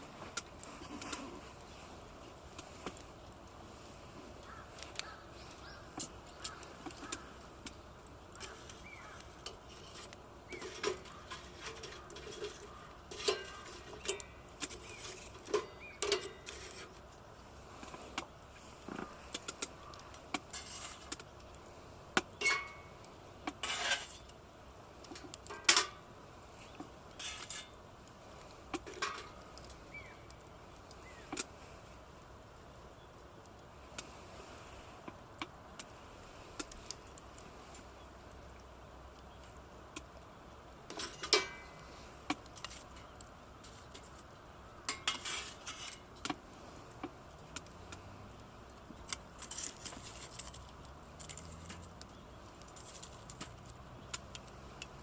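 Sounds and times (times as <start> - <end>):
metal cookware clinking: 10.5 - 16.8, 22.4 - 22.9, 25.5 - 26.0, 28.8 - 29.4, 40.9 - 41.7, 44.9 - 45.5.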